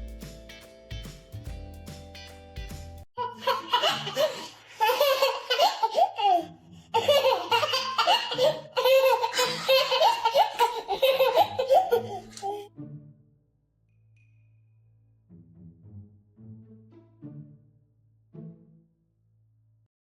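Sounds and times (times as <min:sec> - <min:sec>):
background music: 0:00.0 - 0:13.6, 0:15.2 - 0:19.0
baby laughing: 0:03.2 - 0:12.7.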